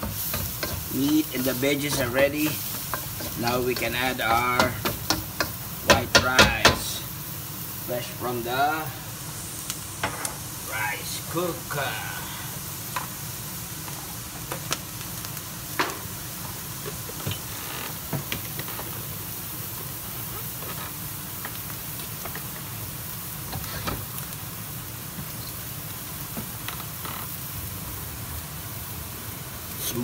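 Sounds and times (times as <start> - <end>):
food sizzling in a wok: 0.0 - 30.0.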